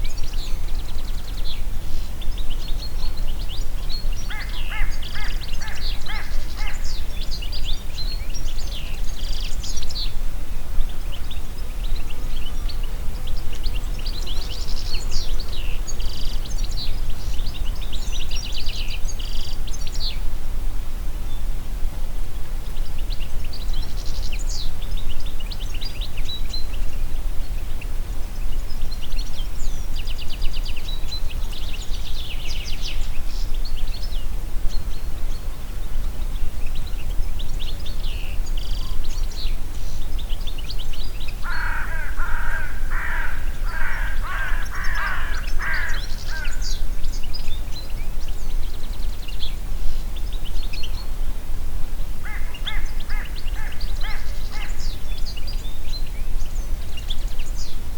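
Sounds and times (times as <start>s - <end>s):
birds singing chirps and trills: 0.0s - 20.4s, 21.1s - 57.9s
low wind rumble: 0.0s - 57.9s
crow-like calls: 4.3s - 6.9s, 41.4s - 46.8s, 52.2s - 54.9s.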